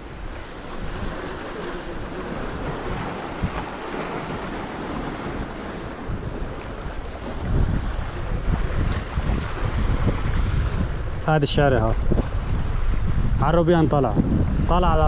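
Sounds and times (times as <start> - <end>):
sea noise: 0.0 - 15.0
steady wind: 0.0 - 15.0
wind buffeting microphone: 0.0 - 15.0.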